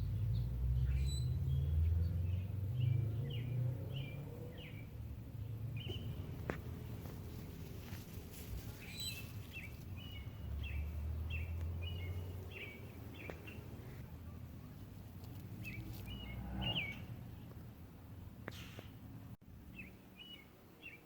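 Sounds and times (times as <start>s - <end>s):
songbird calling: 0.0s - 4.9s, 8.6s - 17.5s.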